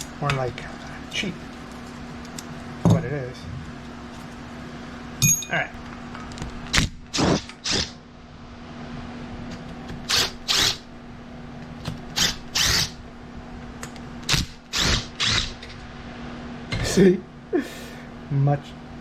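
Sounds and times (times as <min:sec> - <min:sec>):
steady low hum: 0:00.0 - 0:19.0
power driver spinning fasteners: 0:10.0 - 0:10.8, 0:12.1 - 0:13.0, 0:14.2 - 0:15.8.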